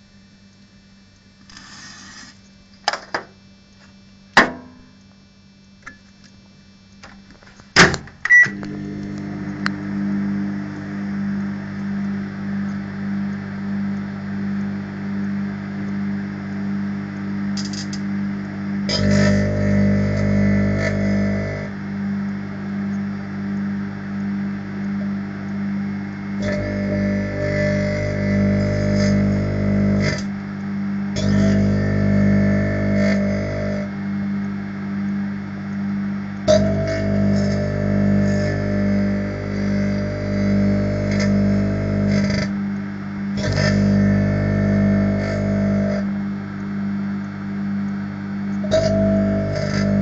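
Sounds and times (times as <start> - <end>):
microwave pulsing hum: 0.0 - 50.0
plasma buzz: 0.0 - 50.0
microwave beep: 8.2 - 11.6, 48.7 - 50.0.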